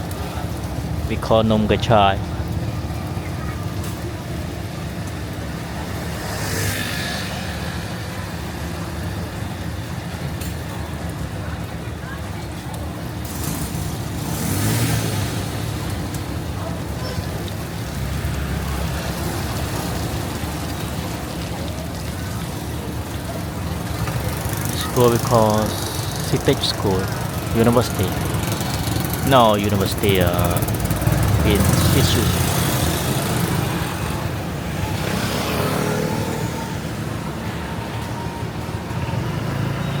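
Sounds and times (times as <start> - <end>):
light rain falling: 0.0 - 40.0
passing cars and motorbikes: 0.0 - 40.0
street traffic rumble: 0.0 - 40.0.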